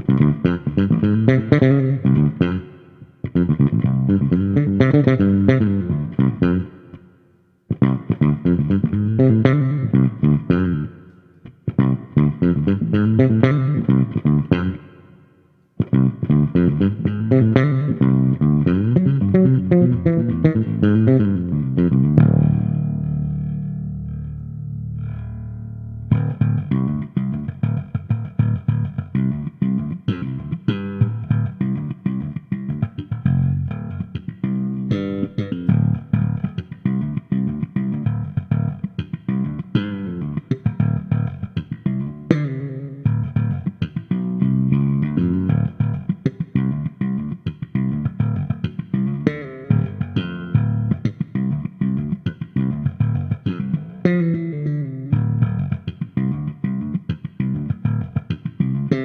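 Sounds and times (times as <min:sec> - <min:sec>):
electric bass plucked notes: 0:00.0 - 0:07.0, 0:07.7 - 0:15.1, 0:15.8 - 0:59.0.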